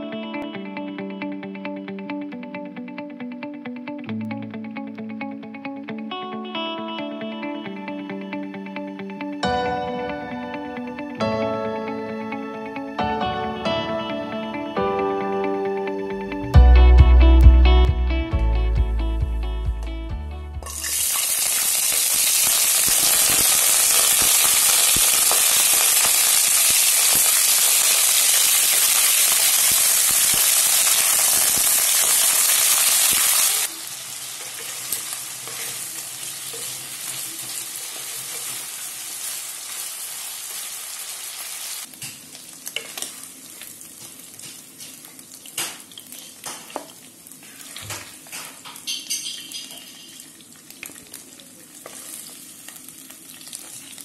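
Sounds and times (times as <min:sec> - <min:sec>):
chicken sizzling in hot oil: 0:20.6 - 0:54.0
wooden spatula scraping a pan: 0:34.5 - 0:36.8.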